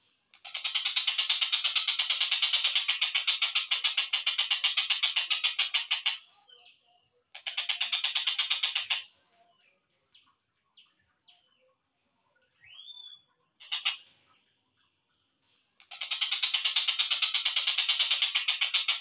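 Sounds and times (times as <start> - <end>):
slowed kingfisher call rattle: 0.4 - 6.2, 15.9 - 19.0
bird chirps: 4.6 - 11.8, 12.5 - 14.0.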